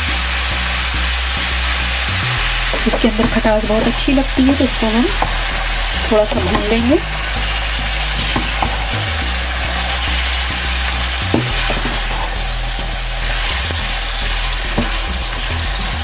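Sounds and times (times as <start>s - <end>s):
vegetables sizzling in hot oil: 0.0s - 16.0s
wooden spoon knocking on pan: 2.7s - 3.9s, 5.1s - 5.4s, 6.1s - 7.0s, 8.2s - 9.0s, 11.3s - 12.3s, 14.7s - 15.6s.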